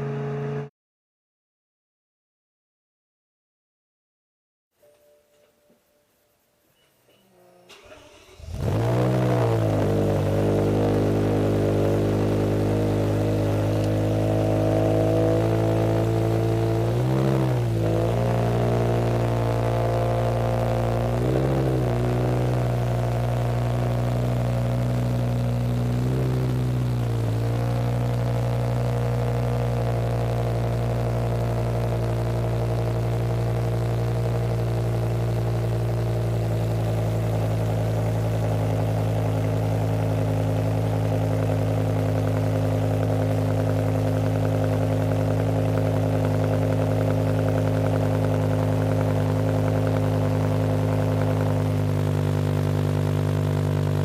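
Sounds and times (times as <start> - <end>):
engine throttle blips: 0.0 - 0.7, 7.7 - 54.0
car engine idling: 7.7 - 54.0.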